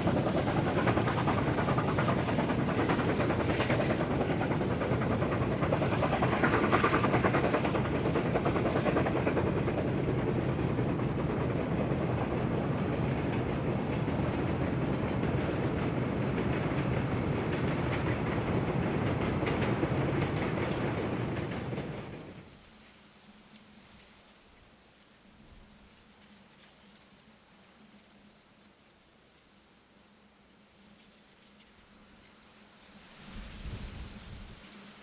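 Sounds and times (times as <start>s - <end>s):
train running on rails: 0.0s - 35.0s.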